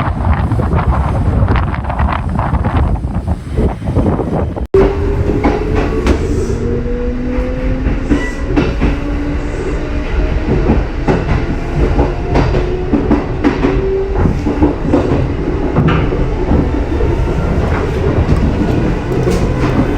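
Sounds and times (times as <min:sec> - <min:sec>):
electric train whine: 0:03.3 - 0:19.9
wheels clicking over rail joints: 0:10.5 - 0:19.9.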